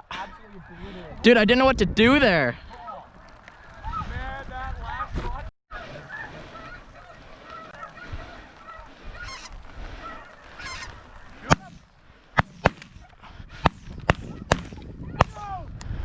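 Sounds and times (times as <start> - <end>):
geese honking: 4.8 - 11.8
shotgun blasts: 11.4 - 11.8, 12.4 - 13.0, 13.6 - 15.5.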